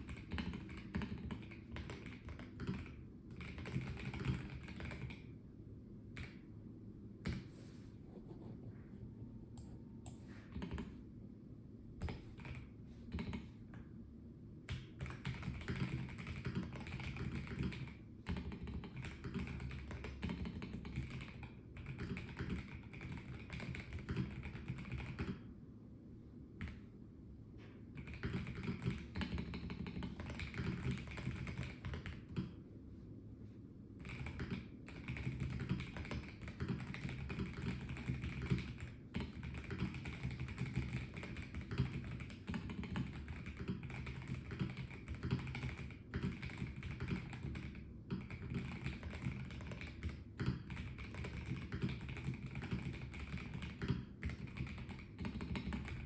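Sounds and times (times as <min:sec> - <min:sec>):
mechanical keyboard typing: 0:00.0 - 0:05.3, 0:10.5 - 0:10.9, 0:12.0 - 0:13.5, 0:14.7 - 0:25.4, 0:27.9 - 0:32.5, 0:34.0 - 0:56.0.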